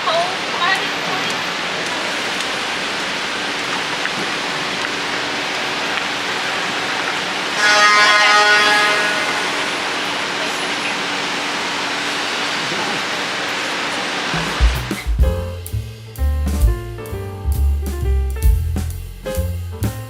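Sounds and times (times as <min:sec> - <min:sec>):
city street traffic: 0:00.0 - 0:20.0
vehicle horn: 0:07.5 - 0:11.3.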